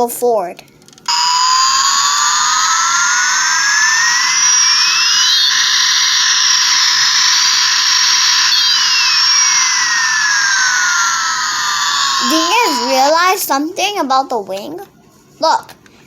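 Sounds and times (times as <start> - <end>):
toy jet engine sound effect: 1.1 - 13.5.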